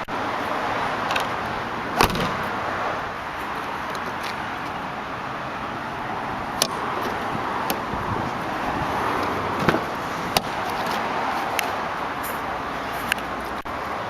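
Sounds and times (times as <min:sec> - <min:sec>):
outdoor background noise: 0:00.0 - 0:14.0
sharp thump: 0:02.0 - 0:02.5.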